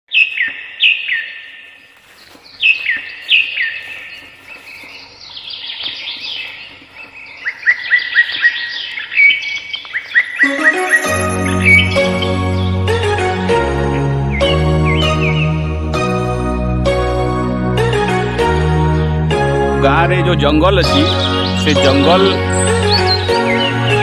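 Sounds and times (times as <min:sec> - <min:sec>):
birds singing whistled calls: 0:00.1 - 0:12.9, 0:13.9 - 0:15.8, 0:20.8 - 0:24.0
music: 0:10.4 - 0:24.0.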